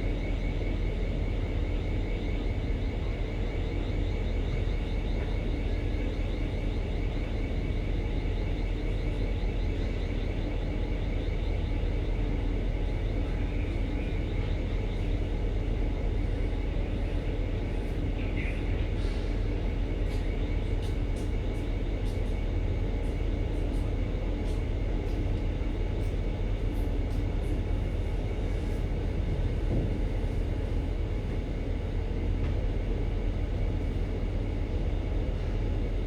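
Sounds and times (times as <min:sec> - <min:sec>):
ship machinery rumble: 0:12.4 - 0:36.0.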